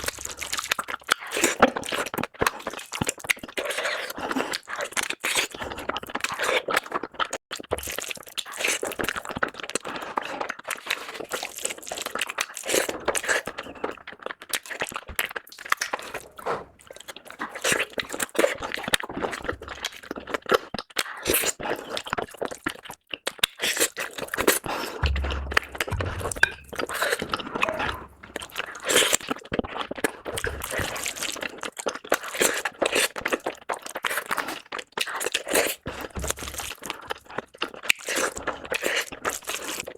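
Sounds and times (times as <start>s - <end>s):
chewing and crunching food: 0.0s - 39.9s
low thud: 25.0s - 28.6s.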